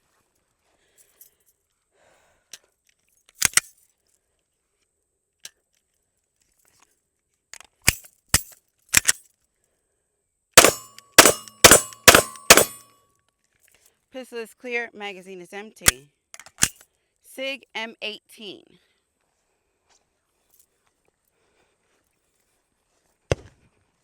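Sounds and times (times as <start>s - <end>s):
pistol shots: 10.6s - 12.8s.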